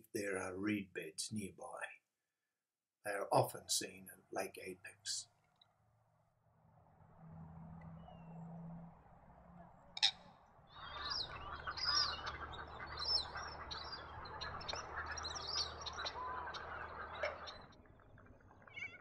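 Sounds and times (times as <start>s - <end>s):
many birds chirping: 10.0s - 19.0s.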